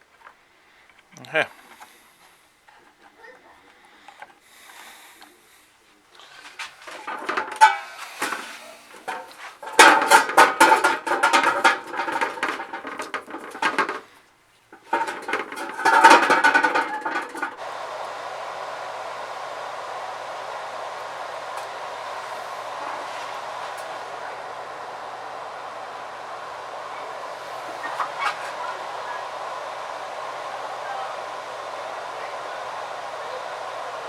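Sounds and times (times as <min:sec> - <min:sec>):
small hard parts clattering: 0:06.2 - 0:17.6.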